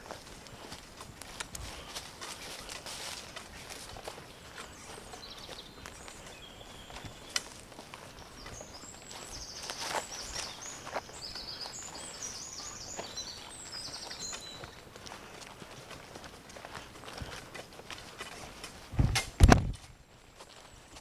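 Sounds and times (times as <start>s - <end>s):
footsteps on forest floor: 0.0s - 21.0s
songbird chirping and trilling: 1.6s - 15.4s.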